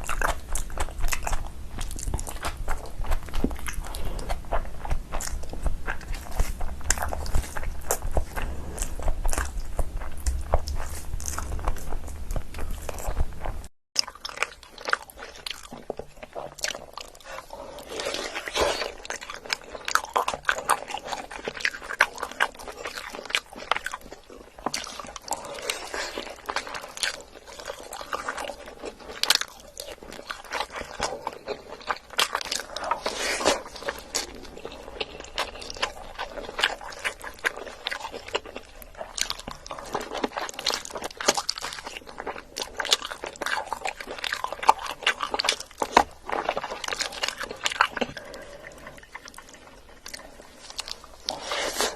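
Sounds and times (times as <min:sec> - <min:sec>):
chewing with wet mouth clicks: 0:00.0 - 0:51.4.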